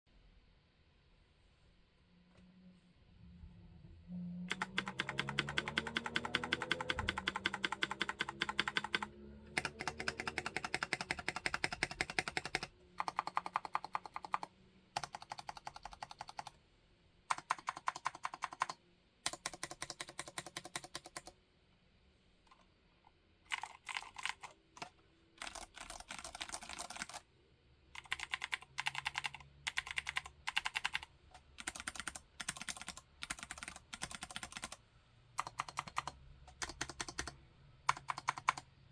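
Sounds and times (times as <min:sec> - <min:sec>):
mechanical keyboard typing: 0:04.5 - 0:16.6, 0:17.3 - 0:21.4, 0:23.5 - 0:27.3, 0:28.0 - 0:34.8, 0:35.4 - 0:38.7.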